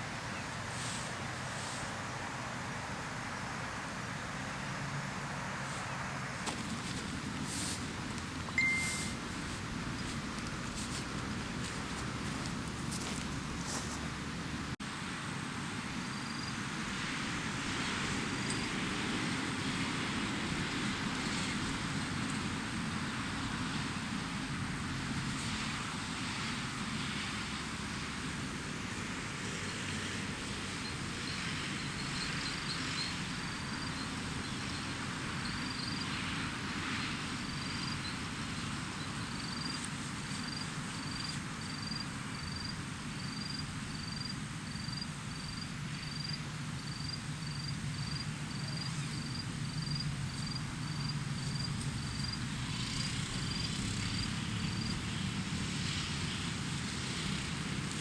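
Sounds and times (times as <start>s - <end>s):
wind: 0.0s - 58.0s
short high chirps: 8.5s - 9.2s.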